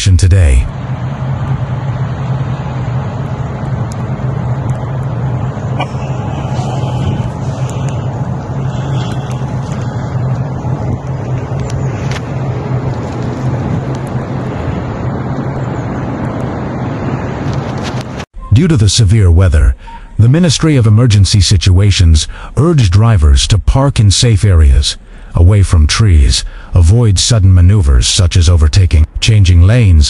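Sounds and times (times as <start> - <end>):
road and tyre noise: 0.0 - 20.3
vehicle engine drone: 0.0 - 30.0.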